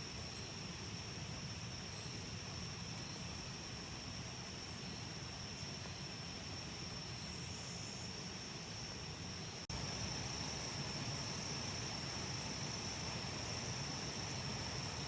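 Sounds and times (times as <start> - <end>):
high-pitched insect drone: 9.7 - 15.0.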